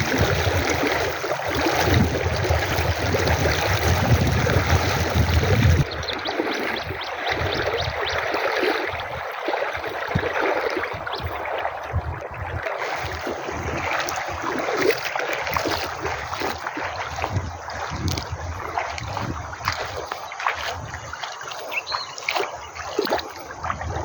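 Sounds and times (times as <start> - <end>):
river water rushing: 0.0 - 10.9
small water splashes: 0.0 - 24.0.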